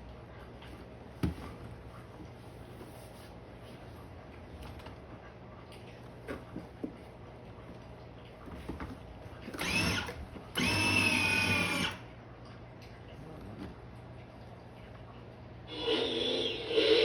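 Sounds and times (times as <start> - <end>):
electric toy motor whining: 9.6 - 12.0, 15.7 - 17.0.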